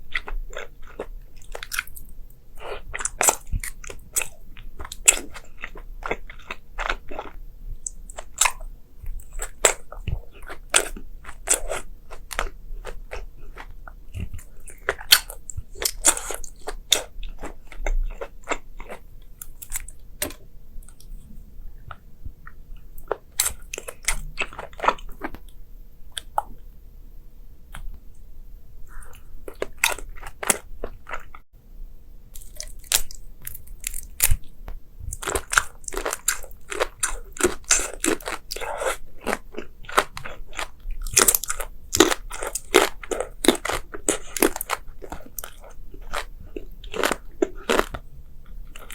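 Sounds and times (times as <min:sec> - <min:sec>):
crunchy food being chewed: 0:00.0 - 0:26.6, 0:28.8 - 0:31.4, 0:32.3 - 0:48.9.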